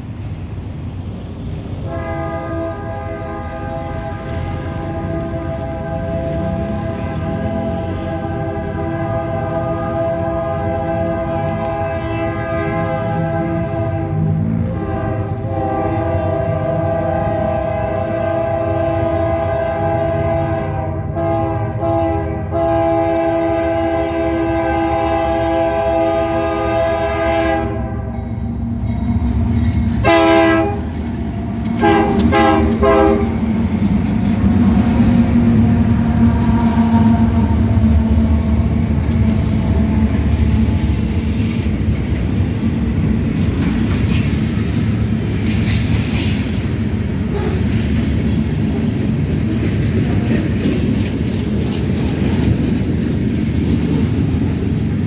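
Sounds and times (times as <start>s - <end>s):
diesel engines rumbling: 0.0s - 55.0s
train wheels on rails: 0.0s - 55.0s
train air horn blasts: 1.8s - 28.8s, 30.0s - 33.6s, 34.3s - 41.0s, 47.2s - 47.9s.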